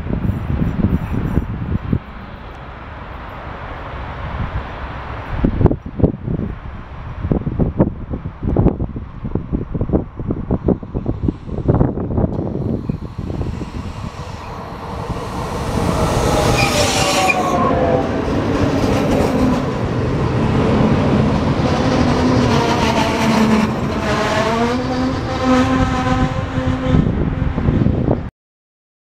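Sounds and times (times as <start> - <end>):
train drive whining: 9.9 - 27.2
train wheels rumbling over rails: 10.3 - 26.3.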